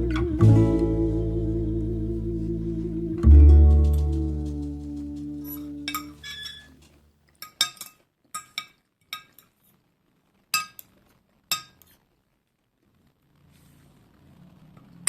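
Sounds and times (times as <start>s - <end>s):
cutlery clinking against dish: 7.4s - 9.5s.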